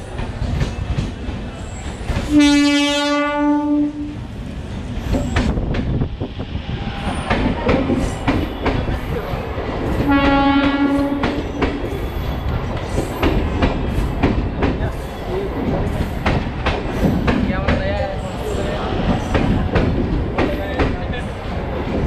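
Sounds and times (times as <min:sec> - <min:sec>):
train wheels rumbling and clattering: 0:00.0 - 0:22.0
train horn blasts: 0:02.3 - 0:04.1, 0:10.1 - 0:11.4.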